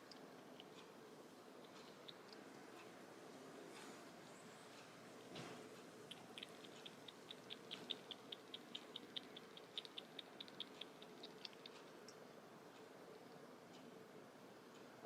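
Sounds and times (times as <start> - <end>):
faint rapid clicks: 6.0 - 13.9.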